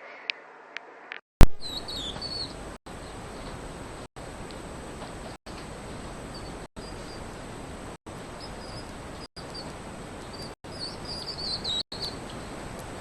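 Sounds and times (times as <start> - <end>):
thin high chirping calls: 1.6 - 3.6, 6.2 - 7.4, 8.2 - 13.0
steady hiss: 1.6 - 13.0.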